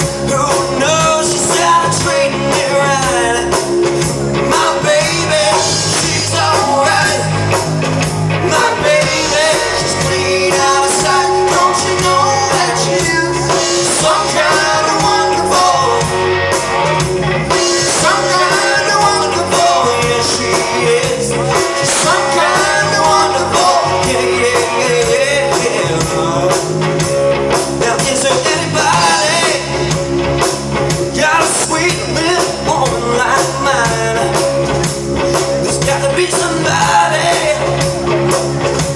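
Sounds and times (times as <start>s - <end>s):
guitar: 0.0s - 38.9s
rock and roll music: 0.0s - 38.9s
person singing: 4.4s - 7.5s, 8.4s - 16.2s, 17.5s - 26.7s, 27.8s - 29.9s.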